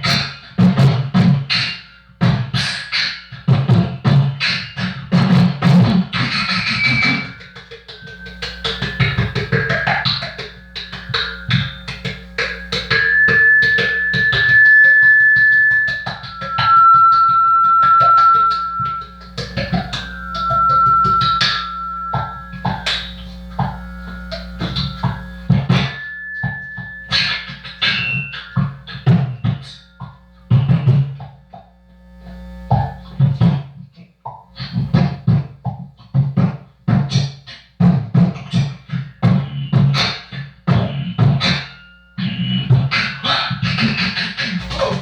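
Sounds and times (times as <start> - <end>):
fast percussive beat: 5.2 - 31.1, 44.6 - 45.0
long held high notes: 6.1 - 33.2
low hum: 6.2 - 33.2.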